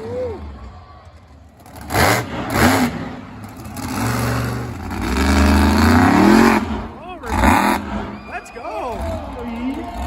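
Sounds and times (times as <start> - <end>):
monster truck engine revving: 1.3 - 10.0.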